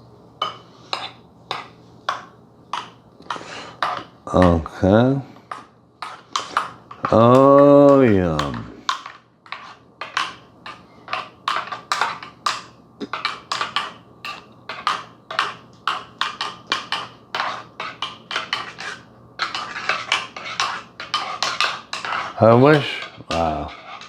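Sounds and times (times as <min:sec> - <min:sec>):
metal spoon stirring in mug: 0:06.0 - 0:24.0.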